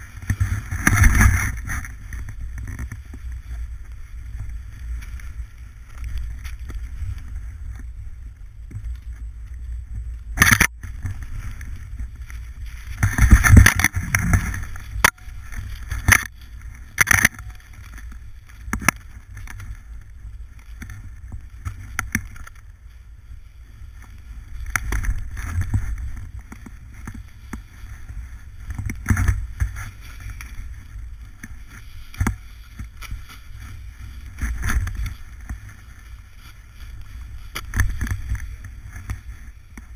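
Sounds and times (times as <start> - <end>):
snowboard sliding over snow: 0.0 - 39.9
wind on microphone: 0.0 - 39.9.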